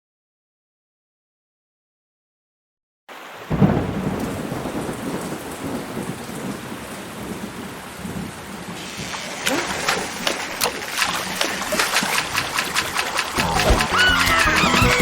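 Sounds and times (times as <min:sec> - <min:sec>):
steady heavy rain: 0:03.1 - 0:15.0
loud thunderclap rumbling: 0:03.5 - 0:15.0.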